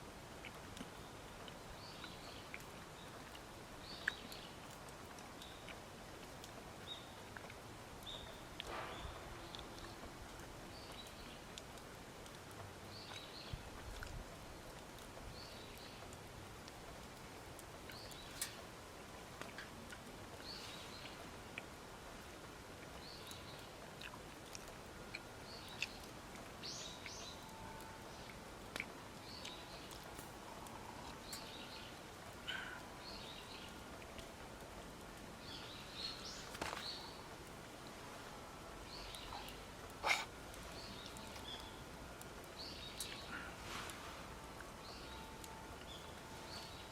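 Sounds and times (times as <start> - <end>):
steady outdoor hiss: 0.0 - 46.9
wild birds chirping: 6.8 - 11.5, 25.1 - 34.3, 35.4 - 37.5, 38.1 - 44.2, 44.8 - 46.9.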